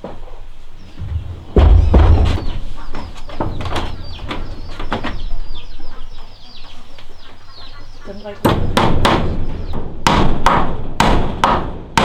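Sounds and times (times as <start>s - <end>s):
birds chirping: 0.0s - 9.8s
irregular knocks: 0.0s - 10.6s
loud thud: 1.0s - 3.9s, 8.5s - 11.4s.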